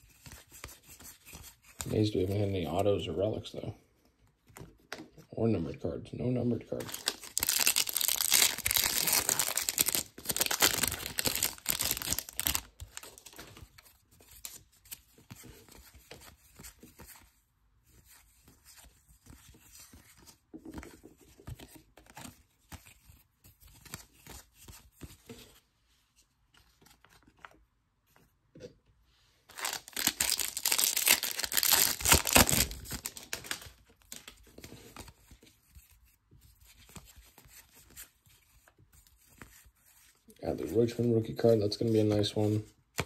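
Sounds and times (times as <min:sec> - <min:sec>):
trading cards rustling: 0:06.7 - 0:17.4, 0:29.5 - 0:35.7
plastic wrapper tearing: 0:06.8 - 0:13.5, 0:29.5 - 0:34.4.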